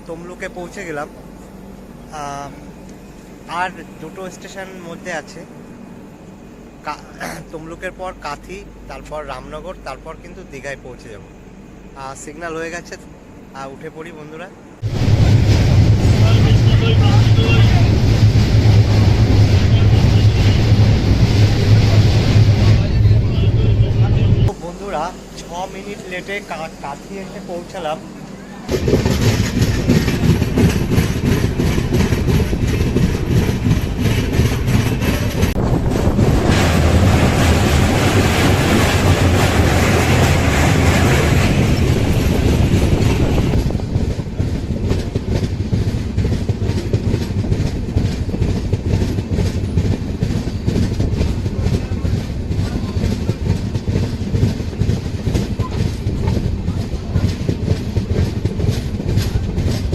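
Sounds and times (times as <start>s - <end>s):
loud rushing noise: 14.8s - 28.0s, 28.7s - 44.9s
train wheels clattering over rail joints: 28.7s - 59.9s.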